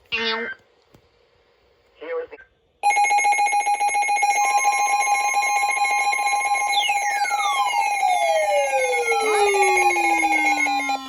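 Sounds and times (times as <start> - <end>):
tone gliding downward: 4.4 - 11.0
pulsing alert tone: 6.6 - 11.0.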